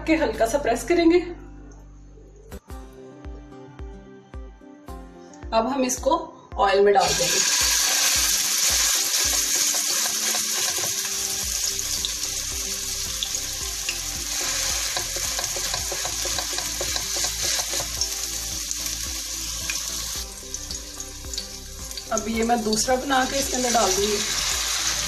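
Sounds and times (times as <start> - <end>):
meat sizzling in a frying pan: 7.0 - 25.0.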